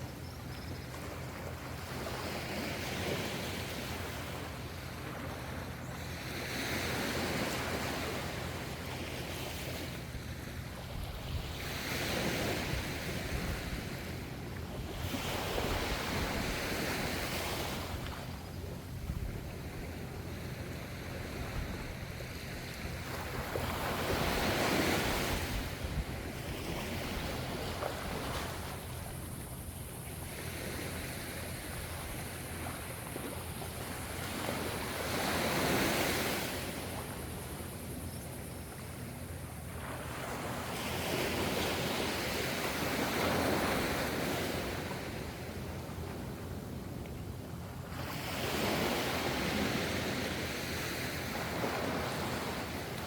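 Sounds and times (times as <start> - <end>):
sea waves washing in: 1.0 - 53.0.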